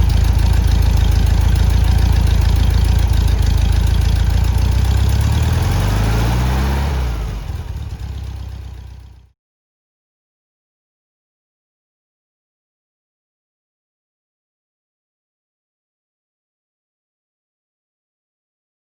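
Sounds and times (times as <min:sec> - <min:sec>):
car engine running: 0:00.0 - 0:09.3.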